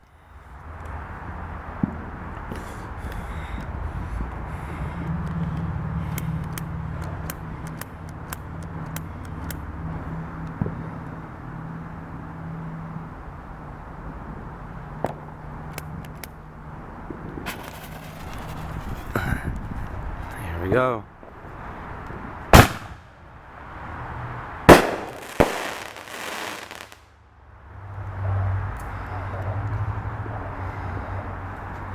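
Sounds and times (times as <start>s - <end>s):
firework bang: 17.1s - 19.6s, 22.5s - 23.1s, 24.7s - 27.0s
sharp cracks: 17.1s - 20.0s, 22.5s - 23.2s, 24.7s - 27.1s
sharp firework report: 17.1s - 20.9s, 22.5s - 23.2s, 24.6s - 27.2s.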